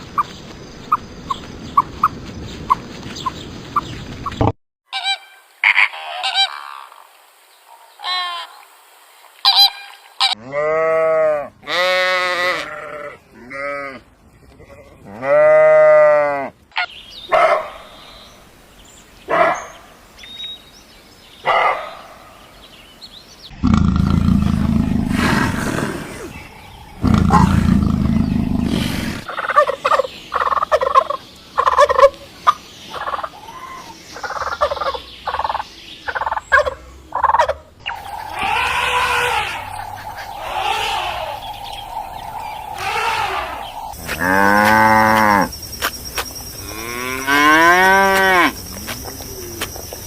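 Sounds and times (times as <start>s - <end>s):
sheep bleating: 10.4s - 14.0s
turkeys gobbling: 29.2s - 33.3s, 34.2s - 44.0s.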